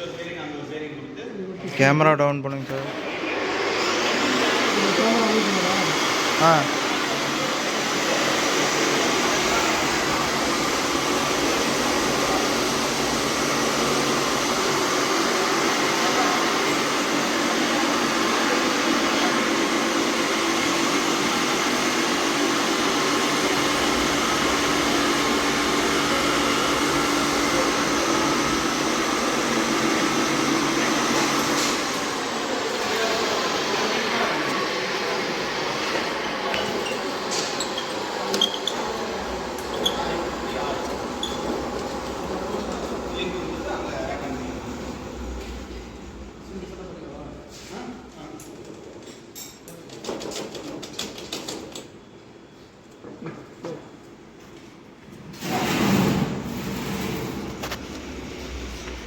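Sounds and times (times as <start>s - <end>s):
mechanical whir with low hum: 40.4s - 47.4s.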